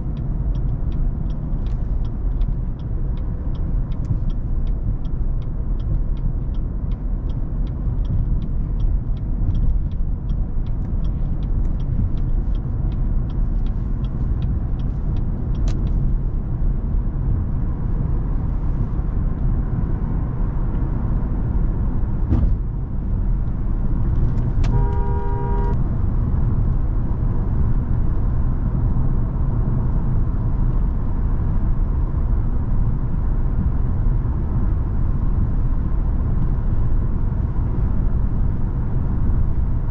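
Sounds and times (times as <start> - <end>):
car engine and road rumble: 0.0 - 39.9
car horn: 24.6 - 25.8.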